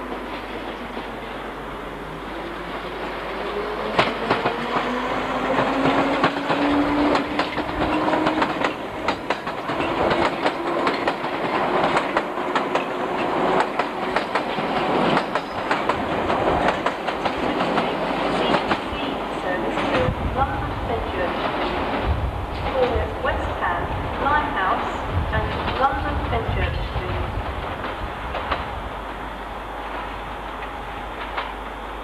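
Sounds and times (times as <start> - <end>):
train wheels clicking over rail joints: 3.9 - 19.0, 29.8 - 31.7.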